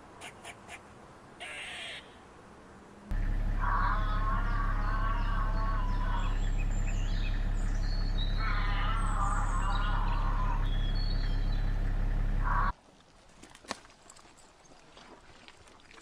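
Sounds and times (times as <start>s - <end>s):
steady low hum: 3.1s - 12.7s
bird warbling call: 3.6s - 12.7s
thin high bird chirps: 4.0s - 11.8s.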